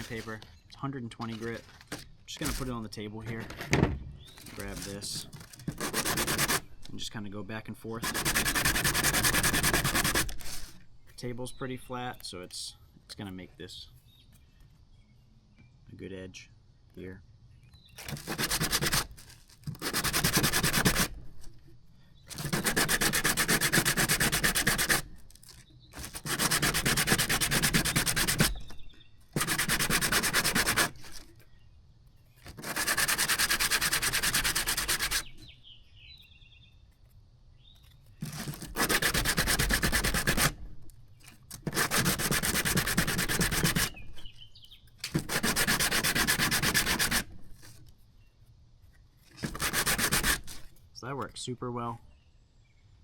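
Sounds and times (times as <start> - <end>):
plastic scraping on sandpaper: 0.0 - 12.6, 17.8 - 31.6, 32.3 - 35.6, 37.7 - 48.1, 48.9 - 50.9.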